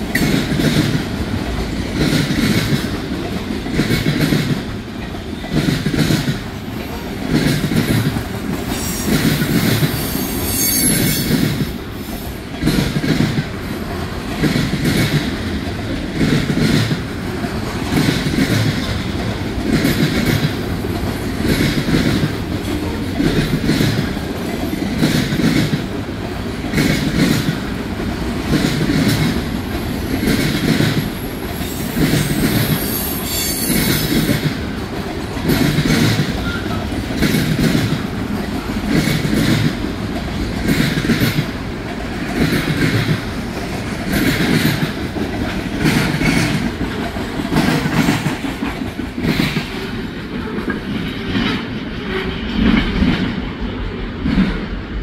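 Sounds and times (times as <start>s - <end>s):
train wheels clattering: 0.0s - 53.6s
wheel squeal: 10.0s - 11.3s, 31.7s - 34.1s.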